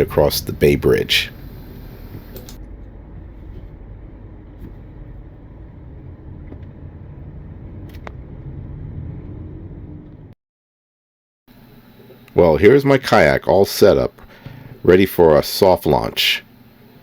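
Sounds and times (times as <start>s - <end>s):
car road and engine rumble: 0.0s - 10.4s
faint clicks: 1.6s - 2.6s.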